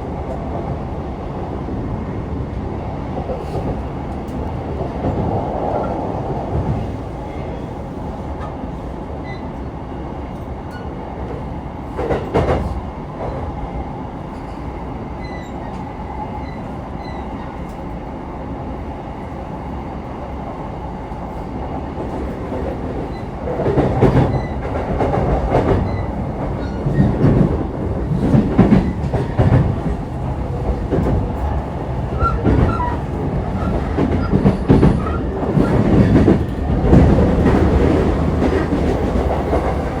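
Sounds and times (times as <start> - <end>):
train interior rolling rumble: 0.0 - 40.0
train wheels clattering over track: 11.9 - 13.4, 22.0 - 40.0.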